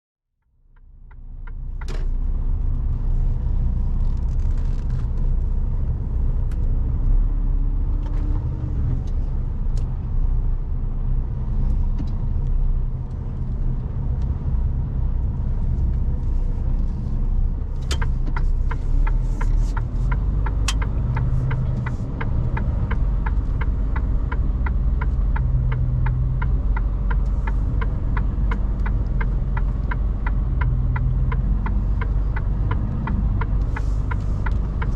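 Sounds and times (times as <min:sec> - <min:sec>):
truck engine rumble: 0:00.6 - 0:34.9
regular ticking: 0:17.8 - 0:34.9.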